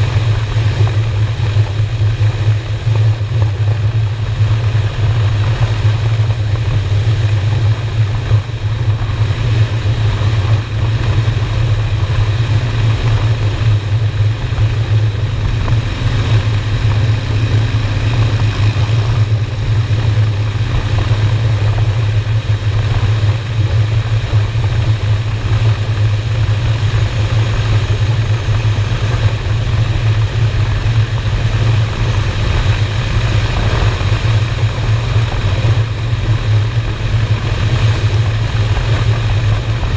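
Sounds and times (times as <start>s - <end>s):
motorcycle engine cruising: 0.0s - 39.9s
road and wind noise: 0.0s - 39.9s.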